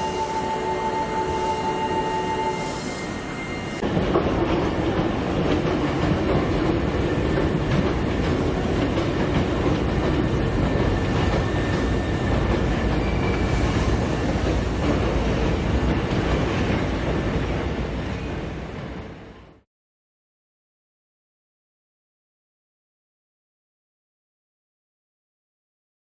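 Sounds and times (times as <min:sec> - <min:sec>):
electric train wheels clicking on rail: 0:00.0 - 0:19.3.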